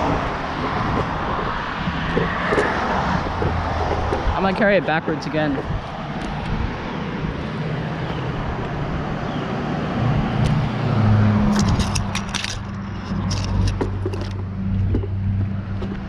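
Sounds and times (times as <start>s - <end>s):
bicycle metallic rattles and clicks: 11.5s - 16.0s.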